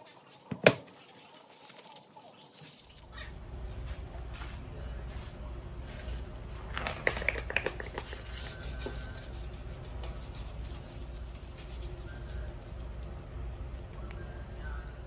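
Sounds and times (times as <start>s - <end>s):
sharp clicks and knocks: 6.8s - 8.4s.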